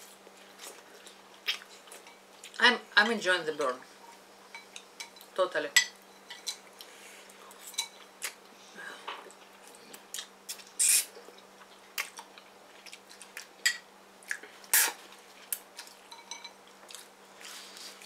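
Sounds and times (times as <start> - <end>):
chewing: 9.3 - 13.6.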